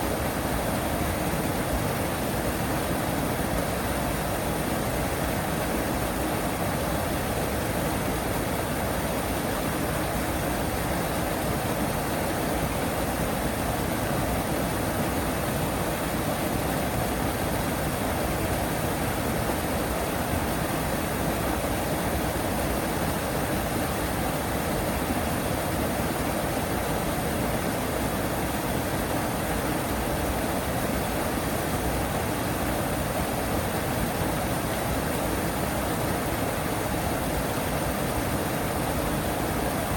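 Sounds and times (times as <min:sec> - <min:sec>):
rush of falling water: 0:00.0 - 0:39.9.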